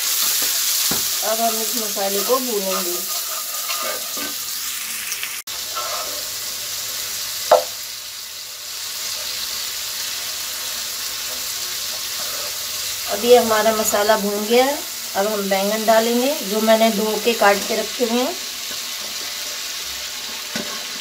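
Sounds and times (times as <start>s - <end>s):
masala sizzling in hot oil: 0.0s - 21.0s
sharp knock: 7.5s - 7.7s.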